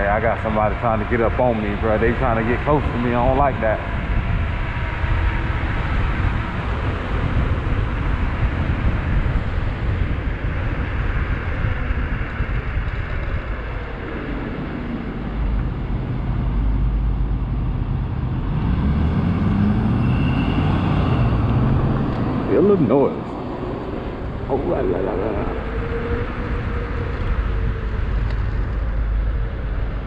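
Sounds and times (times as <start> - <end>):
passing traffic: 0.0 - 30.0
road noise: 0.0 - 30.0
wind rush: 0.0 - 30.0
faint rising tone: 13.9 - 29.8.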